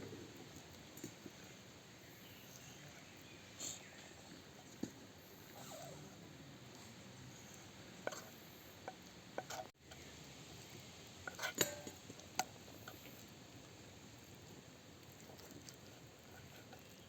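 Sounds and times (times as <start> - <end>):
utensils clinking on pots: 11.3 - 12.0.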